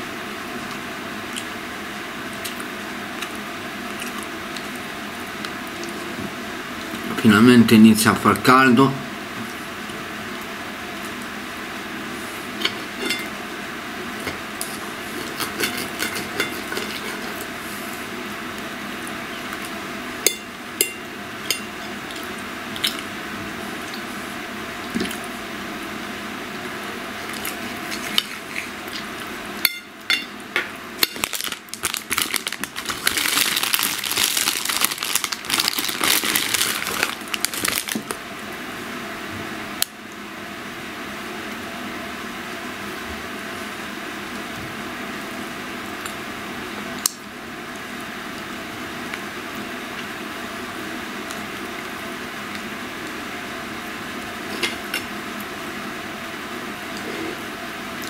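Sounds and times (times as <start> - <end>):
steady background hum: 0.0 - 58.0
chewing: 2.4 - 4.8, 27.2 - 29.1
crunchy crackling: 31.0 - 38.2.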